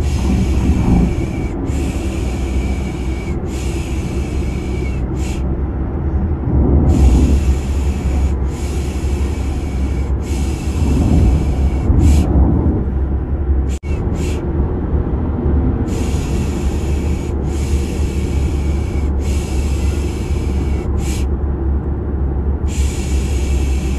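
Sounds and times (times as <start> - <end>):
car ride drone: 0.0 - 23.9.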